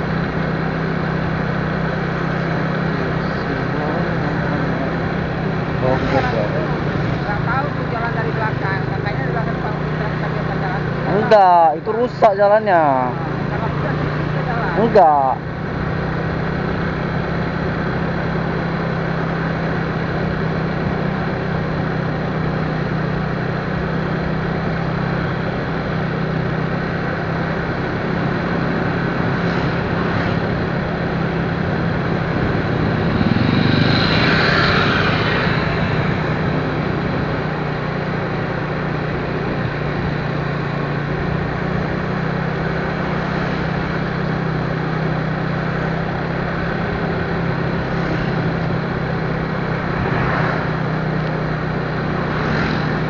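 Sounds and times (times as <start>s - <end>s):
high whine: 0.0s - 53.0s
road and wind noise: 0.0s - 53.0s
vehicle engine hum: 0.0s - 53.0s.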